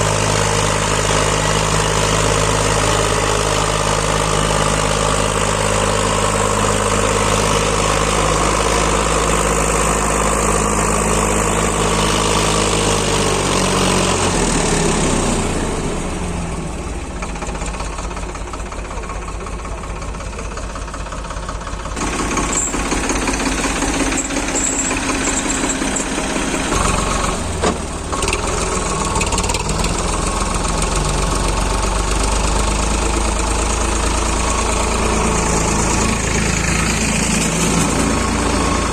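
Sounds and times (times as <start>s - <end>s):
diesel tractor engine running: 0.0s - 38.9s
engine knock: 0.0s - 38.9s.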